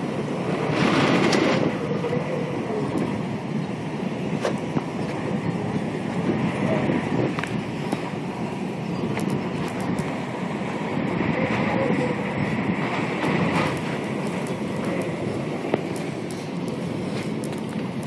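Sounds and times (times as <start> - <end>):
storm wind and rain: 0.0 - 18.0
small ticks: 13.6 - 18.0.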